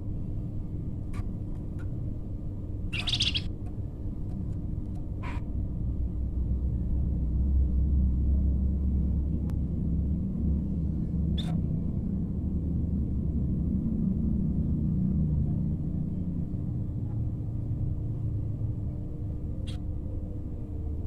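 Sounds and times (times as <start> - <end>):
low steady rumble: 0.0 - 21.0
bird chirps: 2.9 - 3.5.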